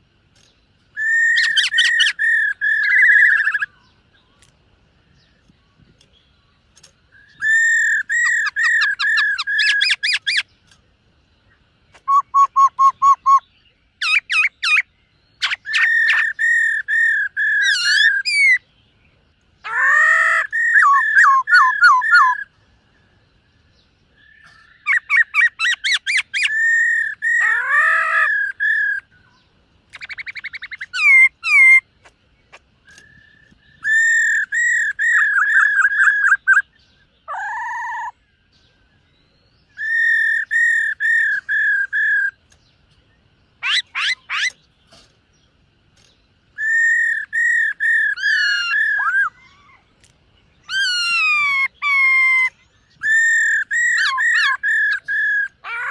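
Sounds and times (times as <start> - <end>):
bird whistled song: 0.4 - 4.5, 5.1 - 55.9.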